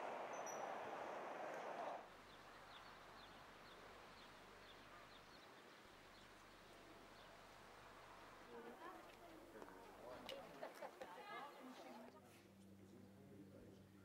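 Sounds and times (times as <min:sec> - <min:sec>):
loud steady rushing noise: 0:00.0 - 0:02.1
small bird chirping: 0:00.0 - 0:06.4.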